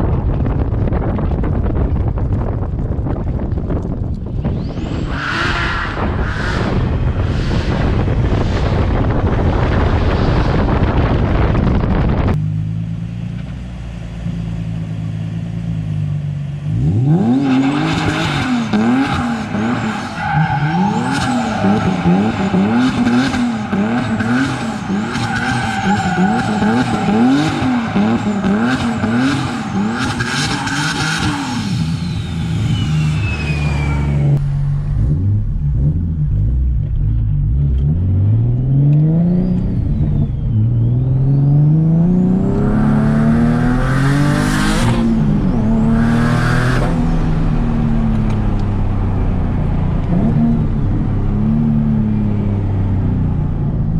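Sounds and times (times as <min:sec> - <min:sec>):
car engine revving: 0:00.0 - 0:53.9
tyre squeal: 0:29.4 - 0:34.4.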